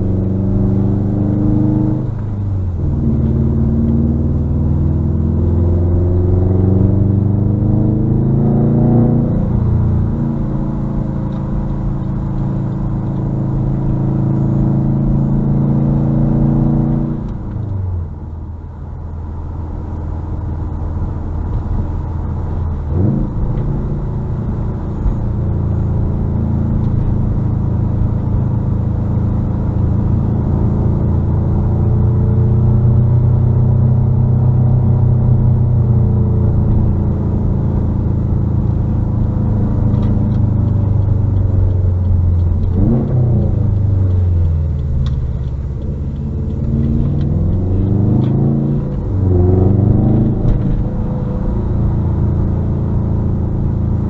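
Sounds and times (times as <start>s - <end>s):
car engine driving: 0.0s - 54.0s.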